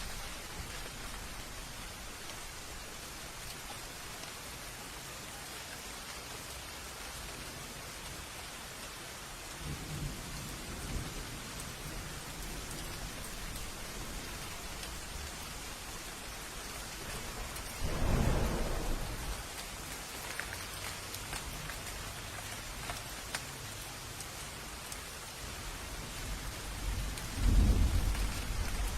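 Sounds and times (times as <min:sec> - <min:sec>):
steady rain: 0:00.0 - 0:28.9
thunder rumble: 0:09.6 - 0:19.9, 0:26.0 - 0:28.9
loud thunderclap: 0:17.0 - 0:19.6, 0:26.9 - 0:28.9.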